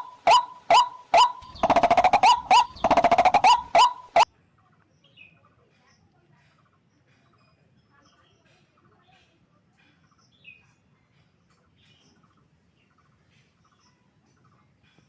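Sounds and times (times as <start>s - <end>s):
fast rattling trill: 0.0s - 4.2s
waterhen calling sharp notes: 0.0s - 4.3s.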